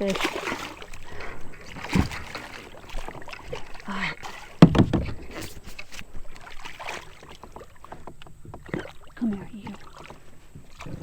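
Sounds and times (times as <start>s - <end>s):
knocks and clatter on kayak: 0.0s - 11.0s
loud thump: 4.6s - 5.2s.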